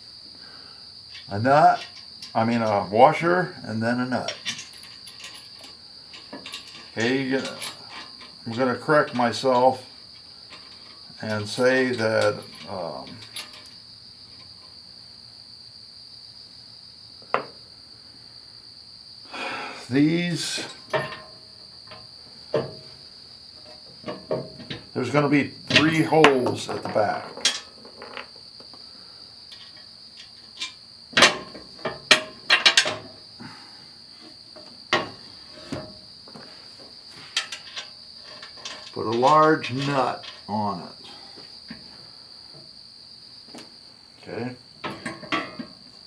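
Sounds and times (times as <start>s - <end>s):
steel hardware clinking: 4.2s - 14.7s, 20.4s - 23.0s, 23.6s - 28.3s, 29.5s - 33.2s, 37.2s - 40.5s, 44.8s - 45.8s.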